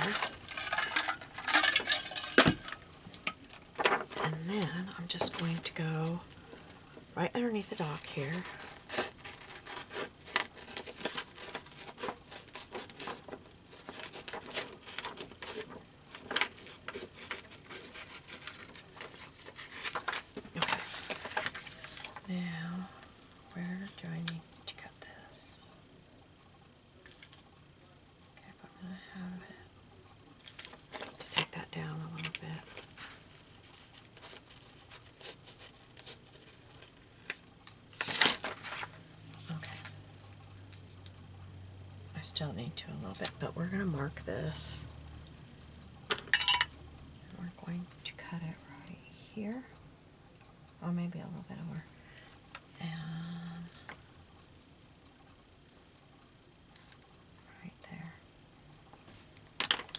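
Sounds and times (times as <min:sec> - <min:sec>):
magazine paper rustling: 0:00.0 - 0:05.6, 0:08.3 - 0:22.2, 0:32.2 - 0:40.0
sharp paper ticks: 0:08.0 - 0:22.2.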